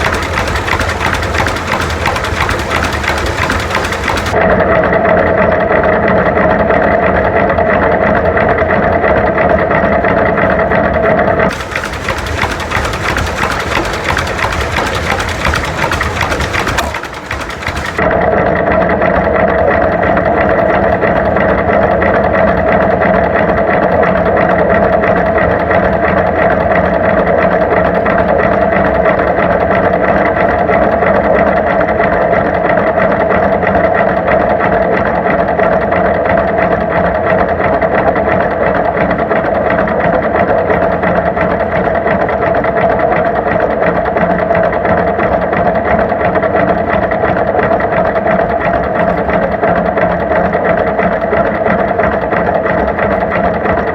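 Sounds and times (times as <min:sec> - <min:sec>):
tractor engine clattering: 0:00.0 - 0:04.4, 0:11.5 - 0:18.0.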